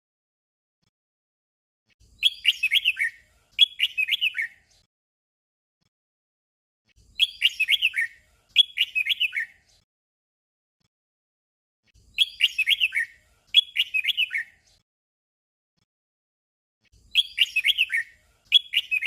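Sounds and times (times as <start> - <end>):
bird whistled warbling song: 2.1 - 4.8, 7.0 - 9.8, 12.0 - 14.7, 17.0 - 19.0.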